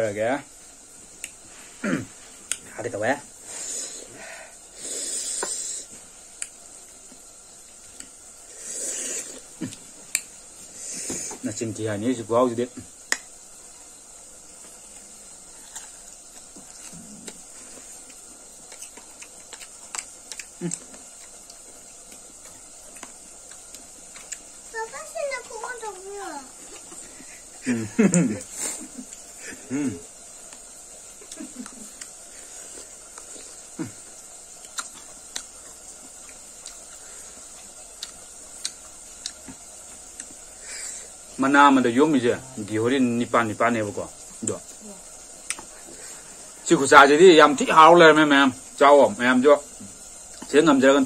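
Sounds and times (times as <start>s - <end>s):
faint high hiss: 0.0s - 51.0s
chewing: 14.9s - 24.6s, 26.6s - 27.3s, 30.5s - 40.4s
mouth clicks and smacks: 18.7s - 21.6s.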